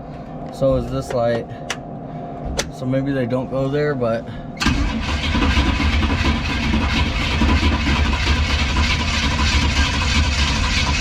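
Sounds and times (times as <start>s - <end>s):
starter cranking engine: 4.6s - 11.0s.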